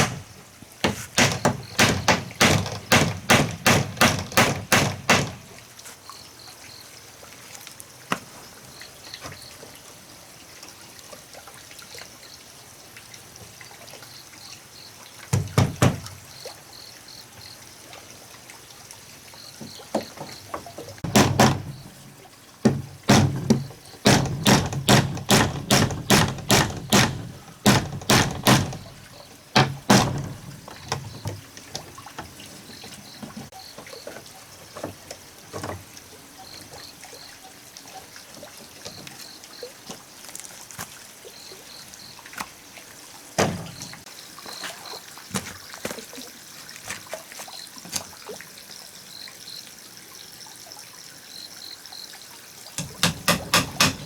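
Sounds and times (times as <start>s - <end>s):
blows struck on wood: 0.0s - 5.4s, 21.0s - 21.9s, 22.7s - 29.0s, 52.8s - 54.0s.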